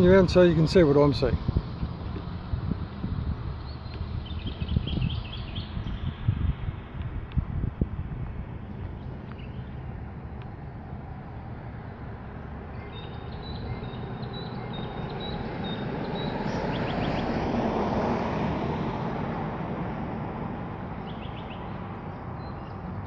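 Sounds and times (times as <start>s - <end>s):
vehicle passing by: 0.0s - 23.0s
bird chirping: 3.6s - 6.6s, 8.6s - 9.9s, 12.6s - 17.4s, 21.0s - 23.0s.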